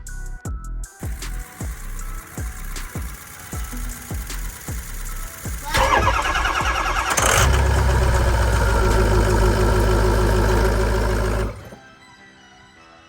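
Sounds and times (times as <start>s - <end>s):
diesel engine cranking: 1.1s - 11.8s
diesel engine running: 2.4s - 11.8s.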